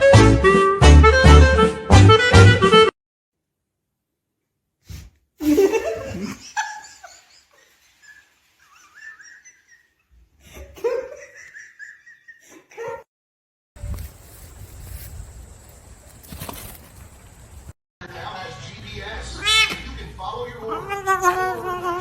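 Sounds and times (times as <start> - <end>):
person laughing: 5.4 - 13.1.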